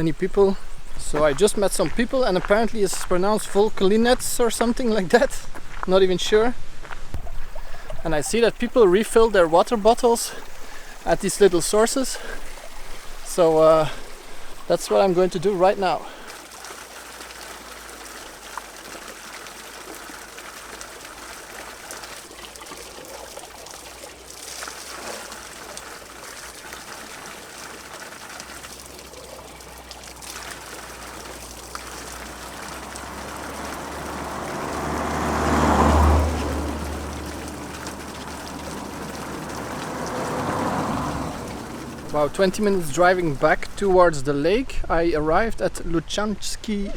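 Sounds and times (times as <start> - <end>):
water trickling from spout: 7.2 - 44.2.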